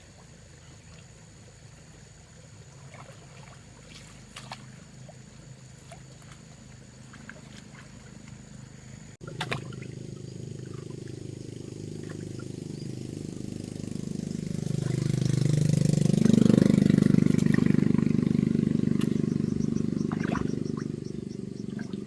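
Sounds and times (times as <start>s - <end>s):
engine running with pulsing note: 4.5s - 22.0s.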